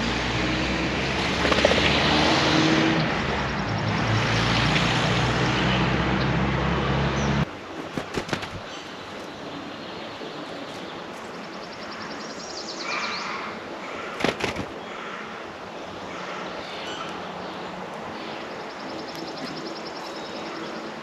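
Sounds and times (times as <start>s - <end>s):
outdoor background hiss: 6.0s - 21.0s.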